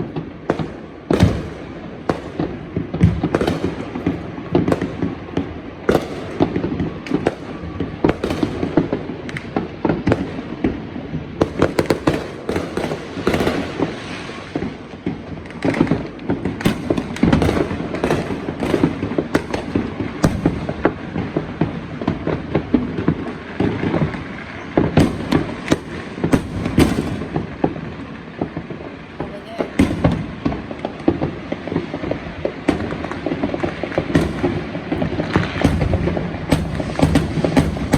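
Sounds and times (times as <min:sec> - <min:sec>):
dense firecracker crackling: 0:00.0 - 0:37.9
fireworks bangs and pops: 0:00.0 - 0:37.9.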